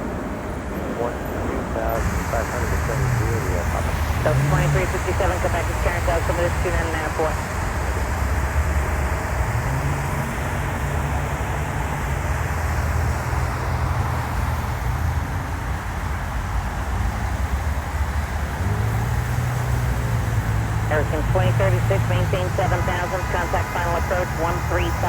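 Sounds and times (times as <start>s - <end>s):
low outdoor rumble with hiss: 0.8s - 8.1s, 16.4s - 25.0s.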